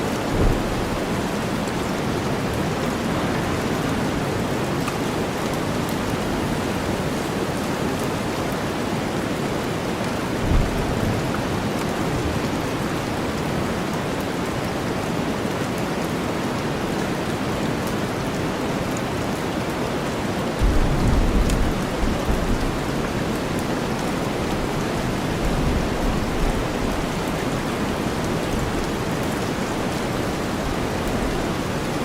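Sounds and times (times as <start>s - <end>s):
rain hissing: 0.0s - 8.8s, 20.6s - 32.0s
short low thump: 0.3s - 1.2s.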